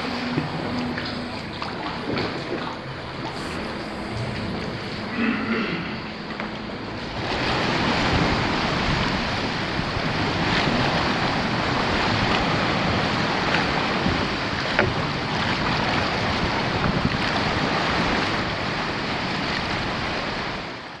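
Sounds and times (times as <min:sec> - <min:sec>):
wind noise on microphone: 0:00.0 - 0:20.7
sea water rushing: 0:00.0 - 0:21.0.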